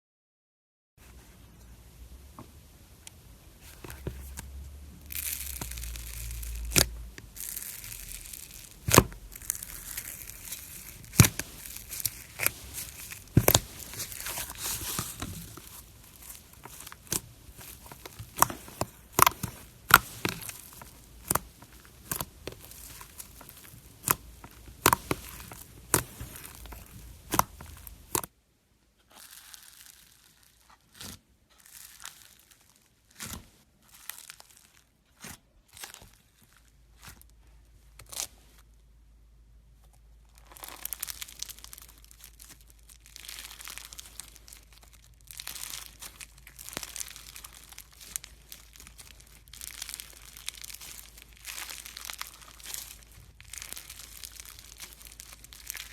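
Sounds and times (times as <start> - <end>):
air pockets popping in slime: 3.6 - 28.3
slime squished and stretched: 3.6 - 28.3, 29.1 - 38.7, 40.3 - 55.9.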